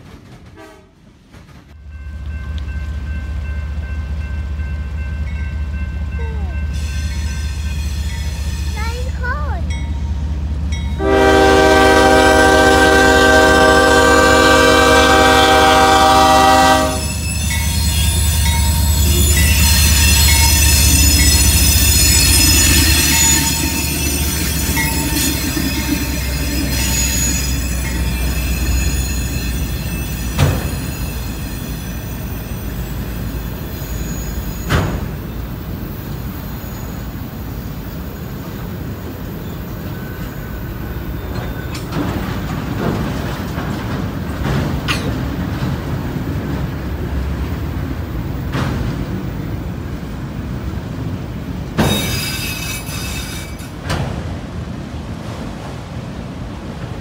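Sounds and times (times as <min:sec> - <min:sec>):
locomotive engine rumbling: 0:00.0 - 0:57.0
locomotive horn blast: 0:00.6 - 0:01.0, 0:11.0 - 0:17.2
steel wheels squealing on rails: 0:06.2 - 0:10.1, 0:10.8 - 0:47.4, 0:48.1 - 0:54.0.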